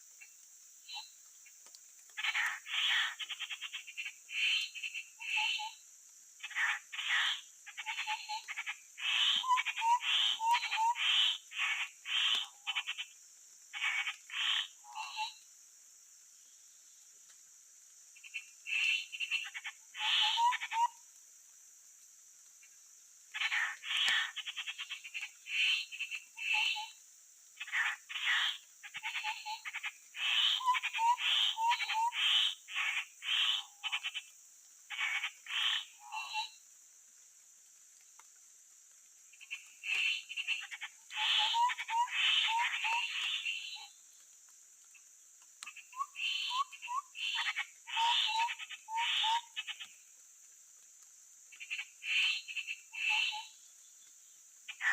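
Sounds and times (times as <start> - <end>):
high-pitched hiss: 0.0 - 54.9
birds harsh rasping calls: 2.2 - 5.5, 34.9 - 36.5, 39.4 - 43.9.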